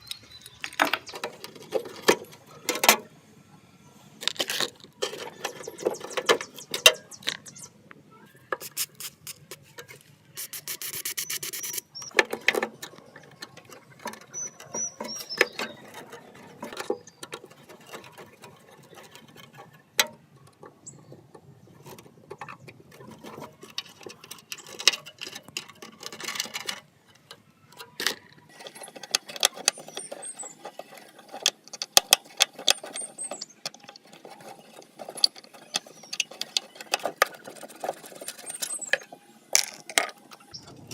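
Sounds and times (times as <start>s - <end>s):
metal parts clicking and scraping: 0.0s - 3.1s, 4.2s - 7.7s, 8.5s - 40.9s
short high squeaks: 10.4s - 12.2s, 14.2s - 16.0s
dense metal rasping: 11.2s - 40.9s.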